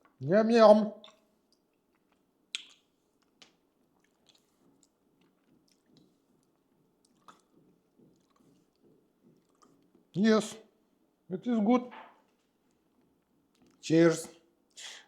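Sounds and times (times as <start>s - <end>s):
lip smacks: 1.0s - 8.8s, 9.4s - 9.9s
swallowing: 4.0s - 10.0s.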